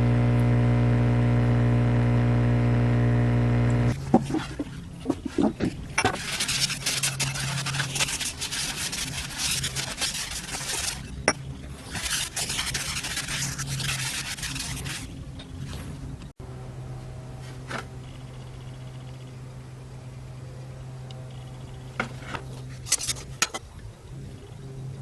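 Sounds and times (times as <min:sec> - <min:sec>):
low steady hum: 0:00.0 - 0:10.0, 0:10.6 - 0:25.0
abrasive rubbing on workpiece: 0:04.0 - 0:11.2, 0:11.8 - 0:15.1.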